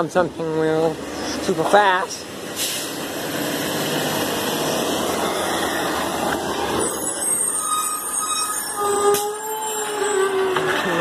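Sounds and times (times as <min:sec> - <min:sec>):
garbage truck rumbling: 0:00.8 - 0:11.0
high-pitched squeals: 0:04.7 - 0:11.0.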